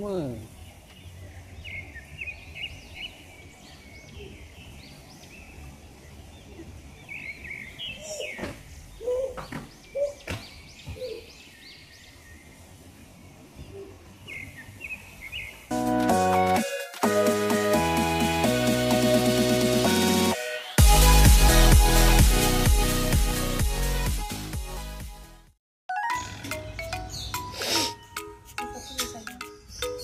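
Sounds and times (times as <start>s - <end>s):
small birds chirping: 0.0s - 15.7s, 26.1s - 30.0s
lower bird calls: 6.4s - 12.2s.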